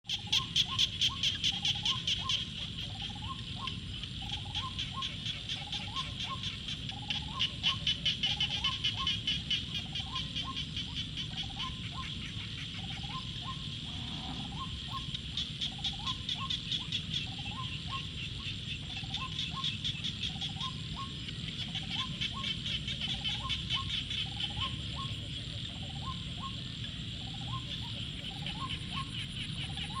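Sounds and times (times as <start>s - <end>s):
high pulsing frog chorus: 0.1s - 30.0s.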